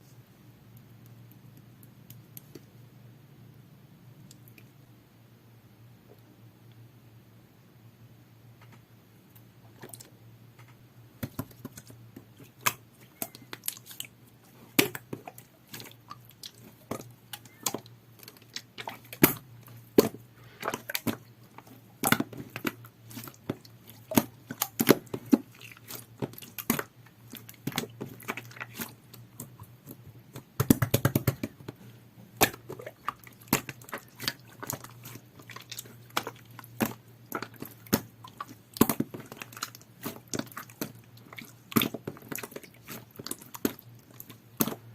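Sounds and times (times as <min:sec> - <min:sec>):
slime squished by hand: 0:11.2 - 0:44.9.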